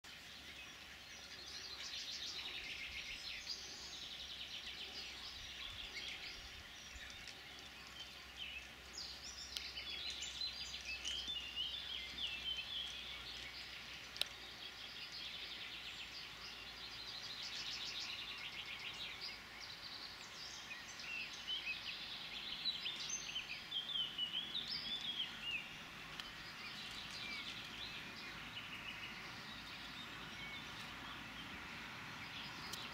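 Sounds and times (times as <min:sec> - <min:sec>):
birds singing and calling: 0:00.0 - 0:32.9.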